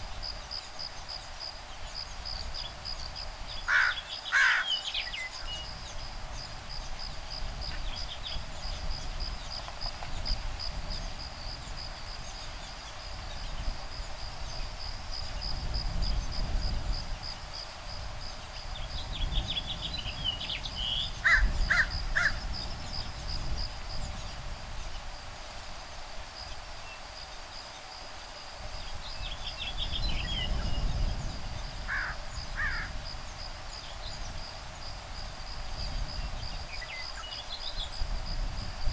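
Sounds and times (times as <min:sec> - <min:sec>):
high insect trill: 0:00.0 - 0:38.9
woodpeckers calling harshly: 0:03.7 - 0:05.5, 0:21.2 - 0:22.4.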